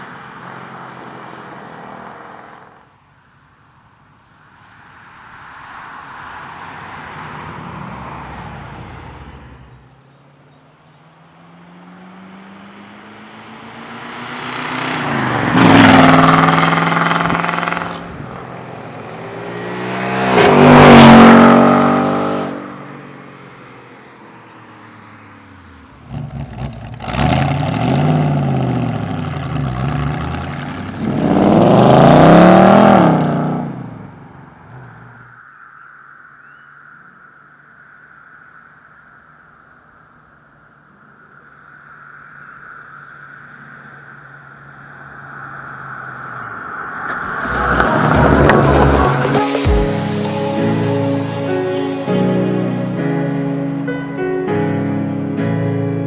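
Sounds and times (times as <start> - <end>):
car engine revving: 10.8 - 22.8, 26.0 - 35.2, 43.6 - 50.3
car accelerating past: 10.8 - 23.2, 24.8 - 35.2, 43.7 - 50.2.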